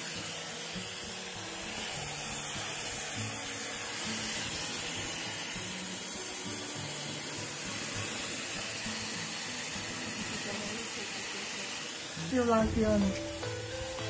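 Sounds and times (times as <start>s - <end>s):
hair dryer blowing: 0.0s - 14.0s.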